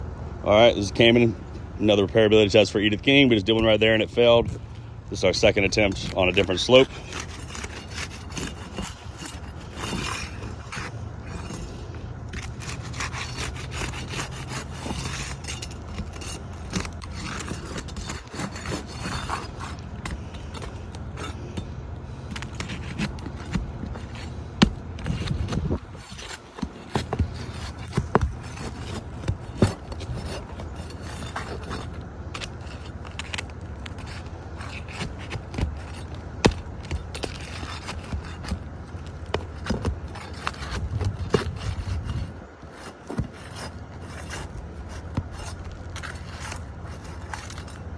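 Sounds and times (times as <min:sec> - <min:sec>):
steady low hum: 0:00.0 - 0:47.9
pry tool scraping roof shingles: 0:00.5 - 0:47.9.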